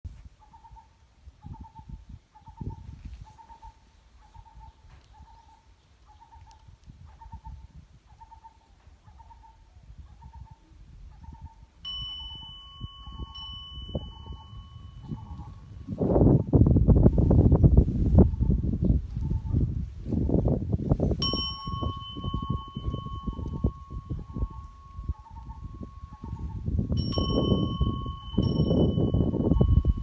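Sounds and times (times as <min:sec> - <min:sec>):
gusty low rumble: 0:13.1 - 0:30.0
steady high tone: 0:21.2 - 0:30.0
owl hooting: 0:24.0 - 0:26.7.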